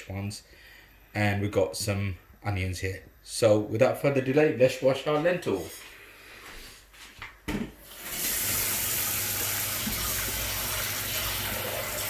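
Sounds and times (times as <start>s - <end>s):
tap water running into sink: 7.6s - 12.0s.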